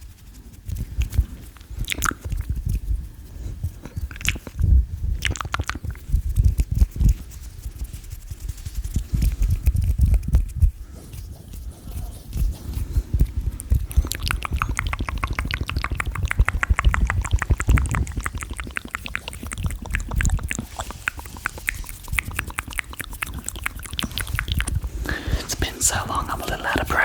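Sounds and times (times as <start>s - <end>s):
tongue clicks and lip smacks: 0.7s - 2.9s, 3.6s - 7.3s, 8.9s - 10.8s, 13.2s - 27.0s.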